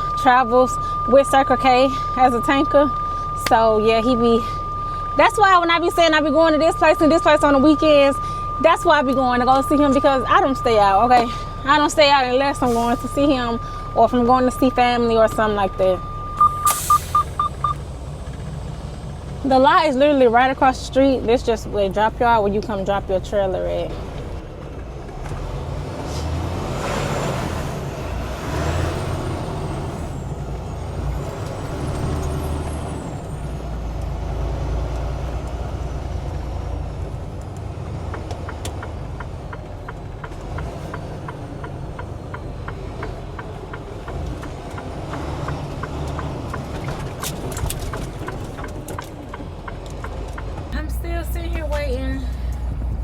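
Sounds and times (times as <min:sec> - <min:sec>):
diesel truck engine rumbling: 0:00.0 - 0:53.0
air brake hiss: 0:16.6 - 0:17.4
evenly spaced clicks: 0:37.4 - 0:50.8.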